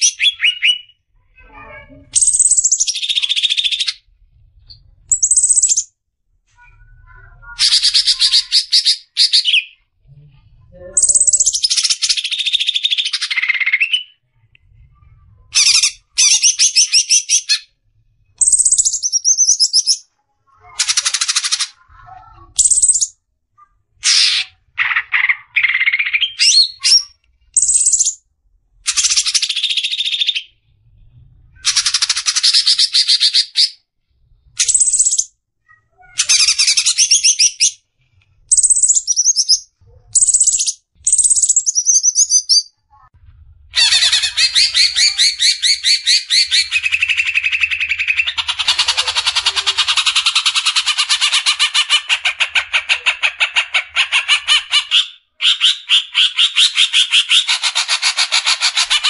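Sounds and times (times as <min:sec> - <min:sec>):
bird trilling and whistling: 0:00.0 - 0:01.0, 0:02.1 - 0:04.0, 0:04.7 - 0:05.9, 0:07.6 - 0:09.8, 0:11.0 - 0:14.2, 0:15.6 - 0:17.8, 0:18.4 - 0:20.1, 0:22.6 - 0:23.2, 0:24.0 - 0:28.2, 0:31.6 - 0:33.8, 0:34.6 - 0:35.3, 0:36.2 - 0:37.8, 0:38.5 - 0:42.7, 0:43.8 - 0:52.5.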